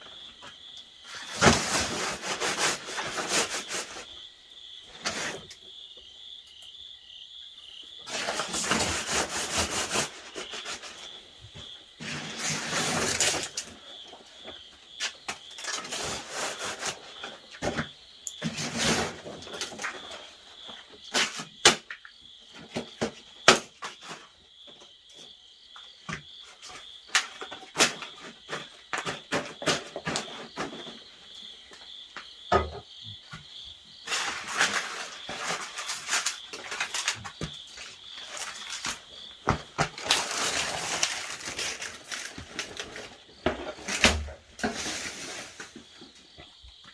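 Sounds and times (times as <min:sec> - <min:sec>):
insects trilling: 0:00.0 - 0:46.9
scraping and rubbing: 0:01.1 - 0:04.1, 0:08.1 - 0:11.2, 0:12.0 - 0:13.8, 0:15.6 - 0:17.4, 0:18.4 - 0:20.2, 0:34.1 - 0:46.2.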